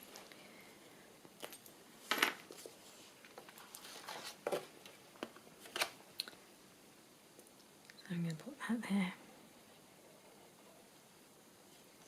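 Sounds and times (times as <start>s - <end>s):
paper and card rustling: 2.1s - 6.0s.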